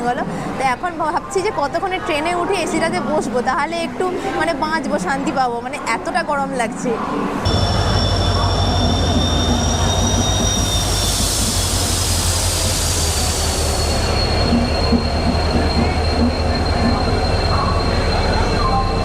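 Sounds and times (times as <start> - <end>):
train rumbling on tracks: 7.4 - 19.0
high wheel squeal: 7.5 - 19.0
hiss: 10.7 - 14.1.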